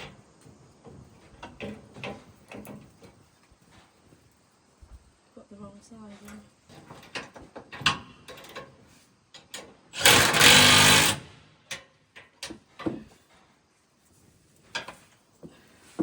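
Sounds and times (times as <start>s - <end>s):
tools and metal parts knocking: 9.4s - 13.1s
impact wrench rattling: 10.0s - 11.2s.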